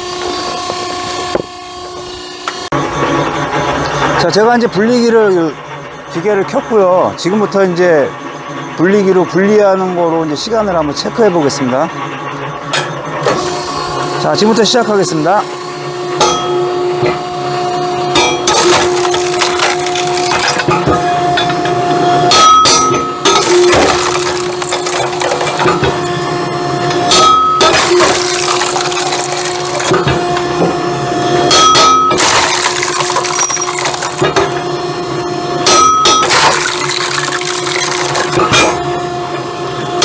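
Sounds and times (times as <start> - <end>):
machine humming: 14.8 - 35.6, 36.2 - 40.0
firewood clattering: 18.5 - 20.8, 23.4 - 26.2, 27.7 - 30.5, 32.2 - 34.5, 36.2 - 38.7.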